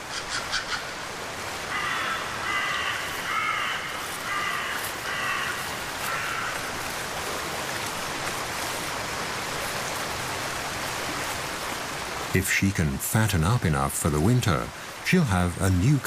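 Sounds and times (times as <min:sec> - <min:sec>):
hiss of rain: 0:00.0 - 0:16.0
crow cawing: 0:01.7 - 0:06.8.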